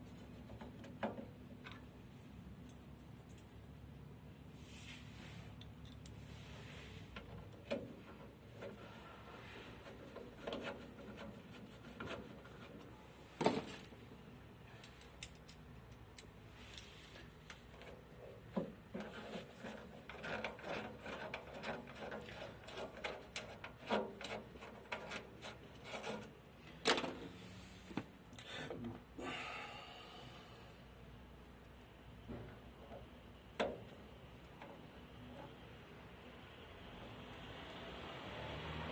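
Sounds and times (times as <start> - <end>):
tools clicking on metal parts: 14.8 - 16.3.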